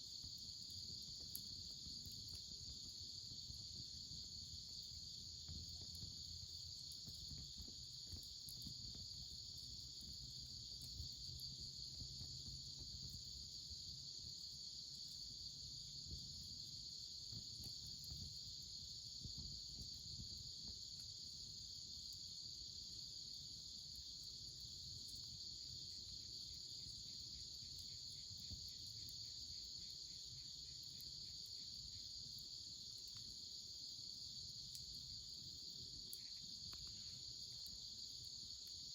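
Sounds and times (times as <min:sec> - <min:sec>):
faint pulsing insect call: 0:00.0 - 0:38.9
insects singing in chorus: 0:00.0 - 0:38.9
faint crackles: 0:35.7 - 0:38.8.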